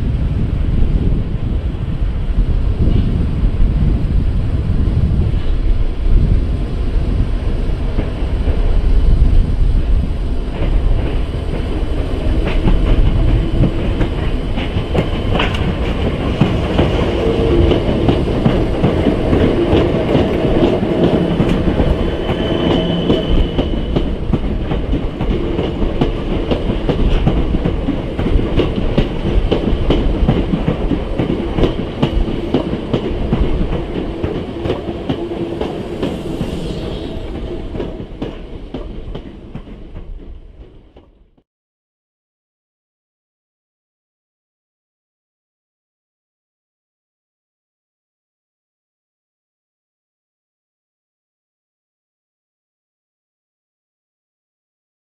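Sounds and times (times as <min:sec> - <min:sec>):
low train rumble: 0:00.0 - 0:41.4
wheels clicking over rail joints: 0:10.5 - 0:22.1.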